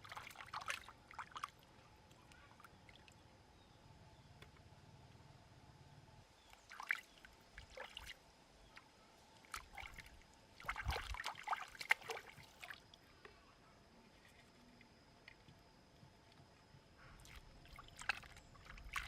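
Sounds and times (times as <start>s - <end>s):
liquid splashing and trickling: 0.0s - 1.7s, 6.6s - 8.2s, 9.4s - 13.0s, 17.2s - 19.0s.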